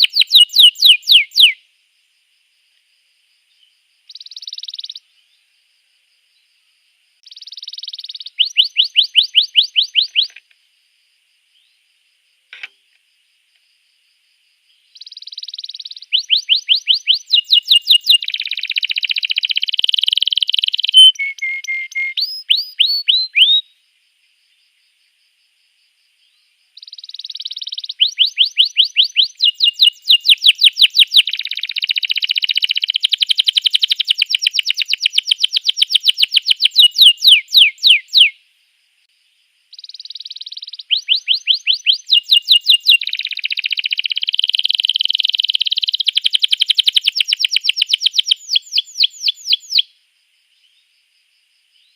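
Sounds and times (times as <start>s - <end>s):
canary singing trills: 0.0s - 1.6s, 3.5s - 5.4s, 7.2s - 10.4s, 14.9s - 23.8s, 26.8s - 38.4s, 39.7s - 49.9s.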